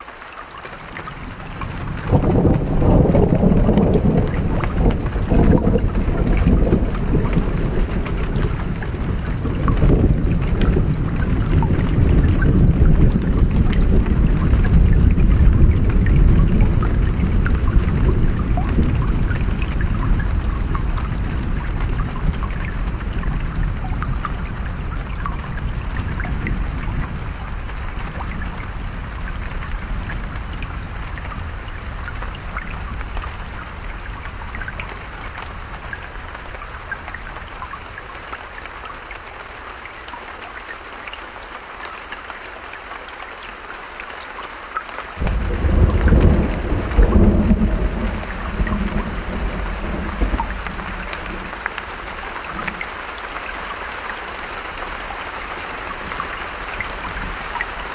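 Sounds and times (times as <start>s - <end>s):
rain falling: 0.0s - 57.9s
thunder rolling: 1.5s - 25.0s, 45.2s - 51.6s.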